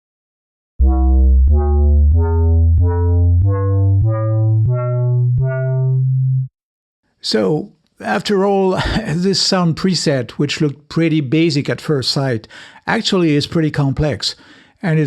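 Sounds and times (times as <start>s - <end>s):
synth bass notes climbing: 0.8s - 6.5s.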